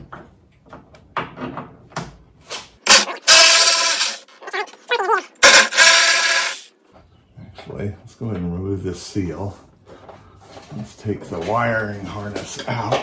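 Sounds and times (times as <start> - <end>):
cordless power tool running: 5.4 - 6.7.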